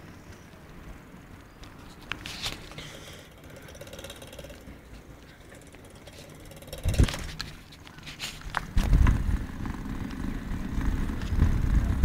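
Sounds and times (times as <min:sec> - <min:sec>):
bicycle freewheel ticking: 0:03.0 - 0:07.2.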